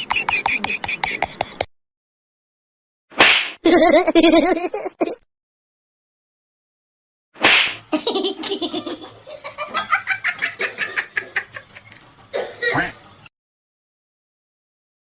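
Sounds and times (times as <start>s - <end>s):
repeated clucking calls: 0.0s - 1.7s.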